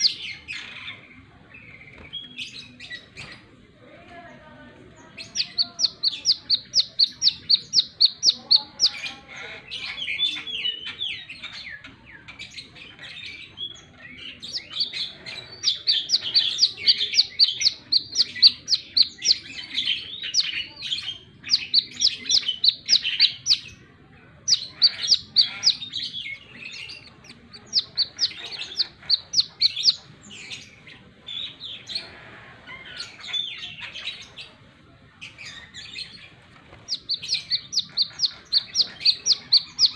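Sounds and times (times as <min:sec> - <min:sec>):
sunbird singing: 0:00.0 - 0:03.4, 0:04.2 - 0:32.1, 0:35.2 - 0:39.9.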